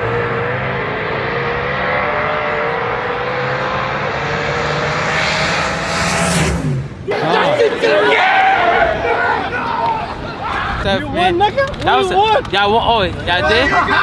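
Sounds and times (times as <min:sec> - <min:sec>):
racing car engine drone: 0:00.0 - 0:09.4
whine rising in pitch: 0:02.9 - 0:07.1.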